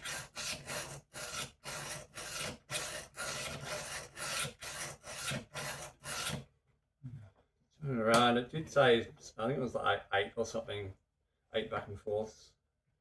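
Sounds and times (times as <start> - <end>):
knife sharpener rasping: 0.0 - 6.4.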